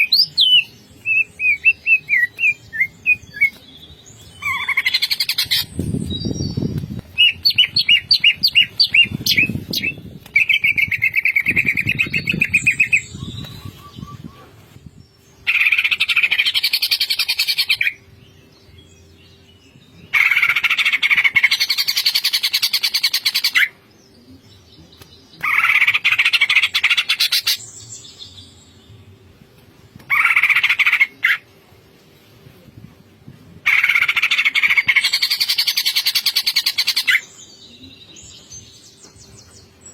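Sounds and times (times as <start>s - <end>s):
bird singing in rapid bursts: 0.0s - 23.7s, 33.7s - 39.9s.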